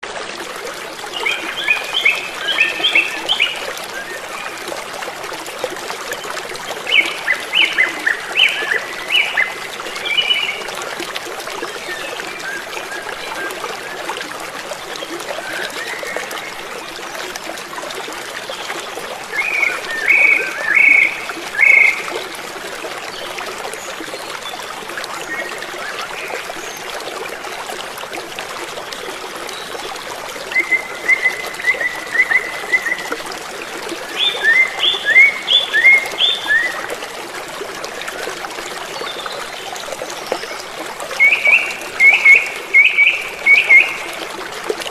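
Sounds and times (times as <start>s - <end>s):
stream trickling: 0.0s - 44.9s.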